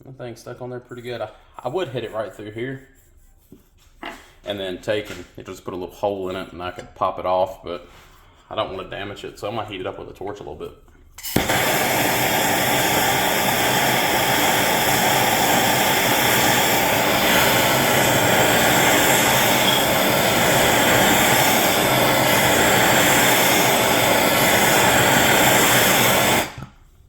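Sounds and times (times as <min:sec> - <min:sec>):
gas torch roaring: 0:11.2 - 0:26.8.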